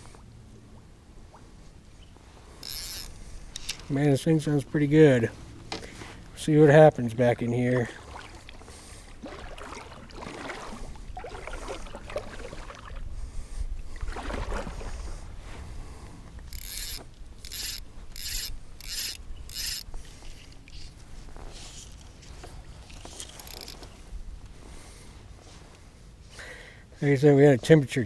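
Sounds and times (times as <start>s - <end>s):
fly reel clicking: 2.6s - 3.9s, 16.4s - 20.0s, 22.9s - 23.9s
rasping line pulls: 2.6s - 3.9s, 16.4s - 20.9s, 21.6s - 24.0s
handling and rubbing: 19.8s - 26.3s.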